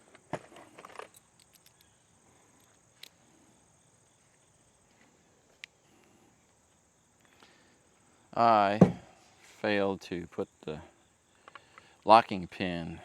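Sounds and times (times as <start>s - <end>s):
small bolts clicking and tapping: 0.8s - 3.2s.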